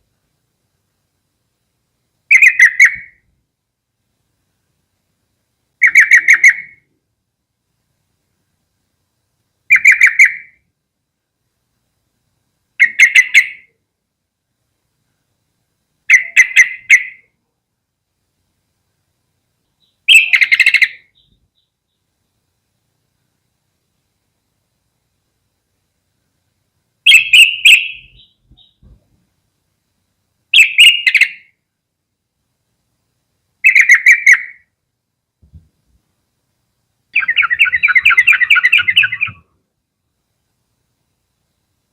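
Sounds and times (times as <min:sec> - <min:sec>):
bird chattering calls: 0:02.3 - 0:03.2, 0:05.8 - 0:06.8, 0:09.7 - 0:10.6, 0:12.8 - 0:13.7, 0:16.1 - 0:17.3, 0:19.8 - 0:21.7, 0:27.1 - 0:28.8, 0:30.6 - 0:31.5, 0:33.6 - 0:34.6, 0:37.2 - 0:39.5.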